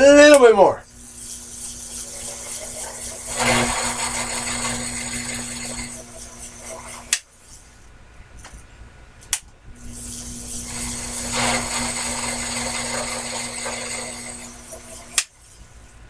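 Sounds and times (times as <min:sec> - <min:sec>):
lathe running and cutting: 0:01.0 - 0:07.2, 0:09.9 - 0:15.3.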